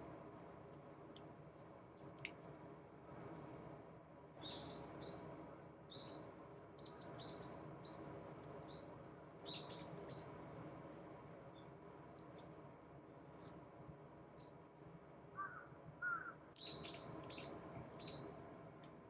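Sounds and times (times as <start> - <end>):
songbirds chirping: 4.3 - 12.6, 13.3 - 19.0.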